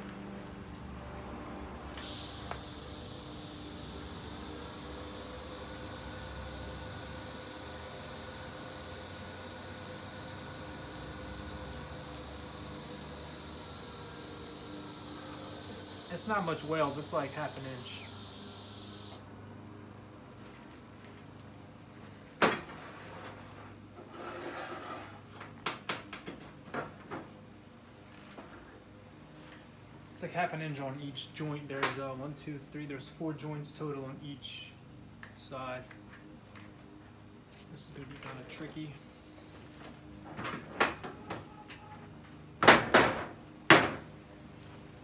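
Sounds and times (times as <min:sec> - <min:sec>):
scraping shuffle: 0:21.6 - 0:25.4.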